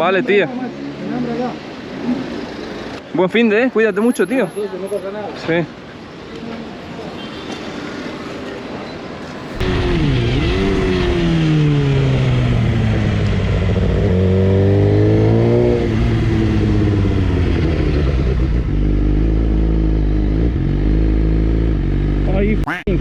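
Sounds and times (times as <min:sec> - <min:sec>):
motorcycle engine accelerating: 0:09.4 - 0:22.5.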